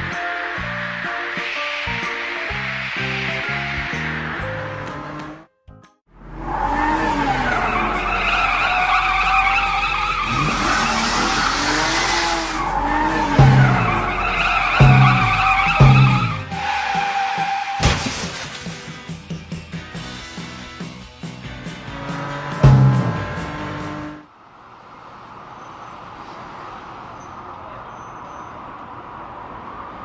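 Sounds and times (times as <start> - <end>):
cartoon car engines revving: 0.0 - 5.5, 6.2 - 17.9, 21.5 - 24.2
background music: 0.0 - 24.2
tyres squealing: 6.4 - 18.0.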